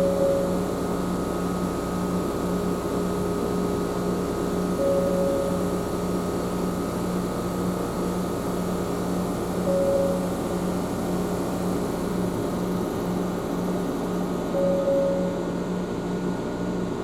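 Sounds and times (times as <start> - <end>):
brief high tone: 0.0 - 0.7, 4.8 - 5.8, 9.7 - 10.7, 14.5 - 15.8.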